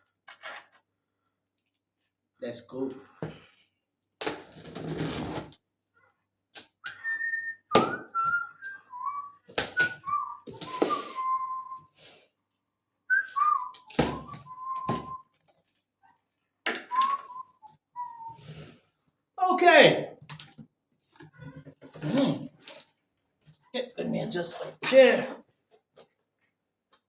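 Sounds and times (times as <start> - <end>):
packaging rasping: 4.2 - 5.6
person whistling a tune: 6.8 - 12.0, 13.1 - 15.3, 16.9 - 18.4.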